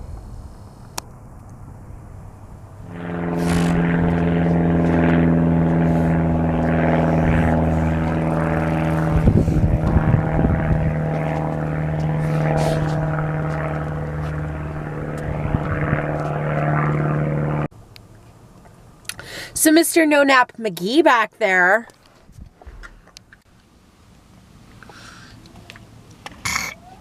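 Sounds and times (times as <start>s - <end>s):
car engine and road noise: 0.0s - 19.1s.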